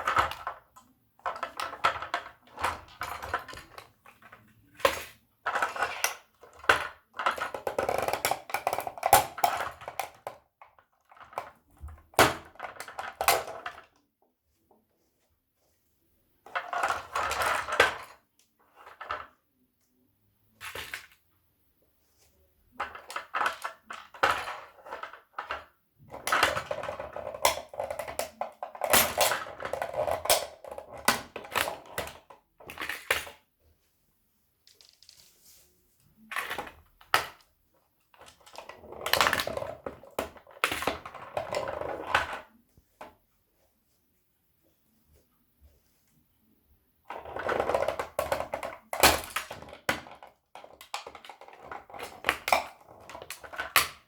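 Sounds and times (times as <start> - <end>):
plastic toys cracking underfoot: 22.9 - 33.4, 47.1 - 54.0.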